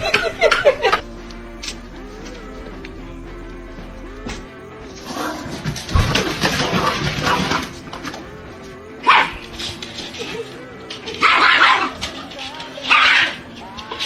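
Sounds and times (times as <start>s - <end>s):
background music: 0.0s - 14.0s
dog barking: 9.0s - 10.4s, 11.0s - 13.5s.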